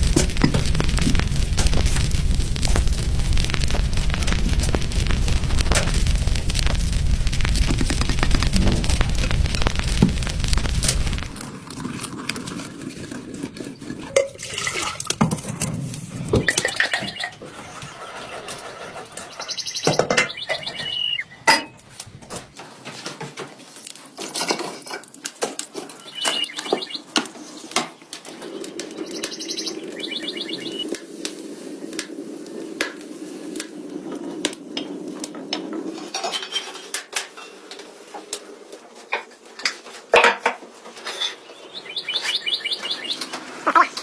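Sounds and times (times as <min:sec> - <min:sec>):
small birds chirping: 0:00.0 - 0:11.4, 0:16.1 - 0:21.5, 0:25.7 - 0:35.2, 0:41.0 - 0:44.0
steady low hum: 0:00.0 - 0:11.7.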